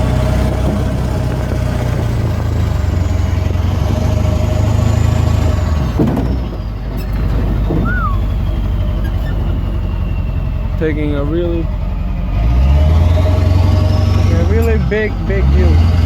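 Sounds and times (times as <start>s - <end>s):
car engine humming: 0.0s - 16.0s
short knock: 7.6s - 8.2s.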